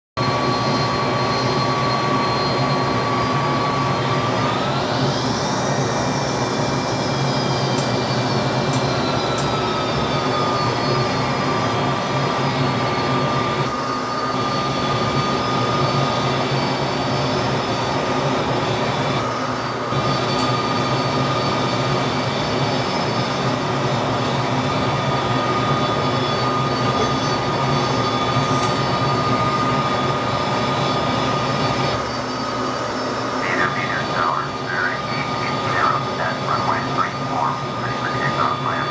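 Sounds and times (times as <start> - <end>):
jet engines roaring and whining: 0.2 - 38.9.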